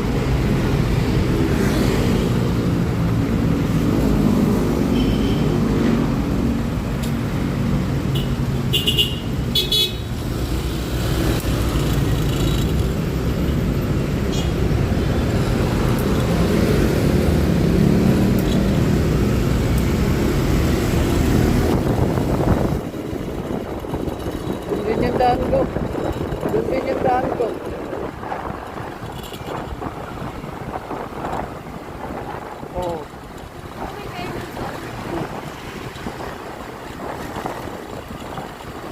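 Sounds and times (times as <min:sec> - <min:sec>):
road and wind noise: 0:00.0 - 0:38.9
vehicle horn toots: 0:04.9 - 0:05.5, 0:08.2 - 0:10.1
scooter engine running: 0:20.0 - 0:28.0.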